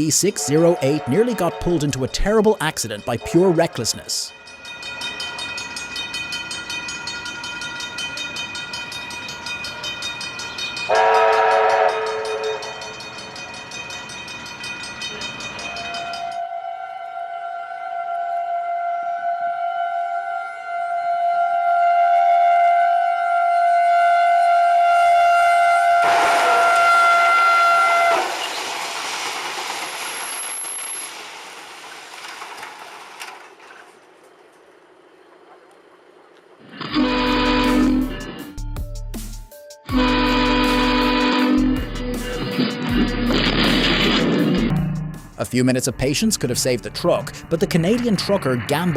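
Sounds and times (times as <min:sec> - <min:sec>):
train running past: 0:00.0 - 0:38.6, 0:39.9 - 0:48.9
train horn blast: 0:00.3 - 0:02.0, 0:10.9 - 0:12.8, 0:16.4 - 0:28.3, 0:36.8 - 0:38.5, 0:39.9 - 0:43.4.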